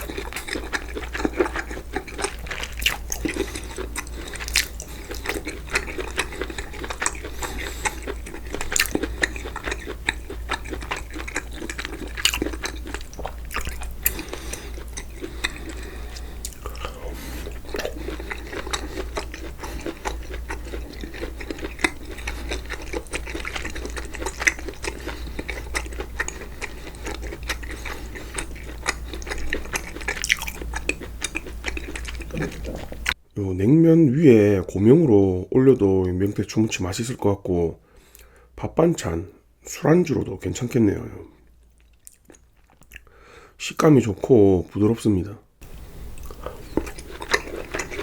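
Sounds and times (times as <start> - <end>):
close chewing and crunching: 0.0 - 33.2, 40.6 - 43.1, 45.6 - 48.0
steady low hum: 0.0 - 37.0, 45.6 - 48.0.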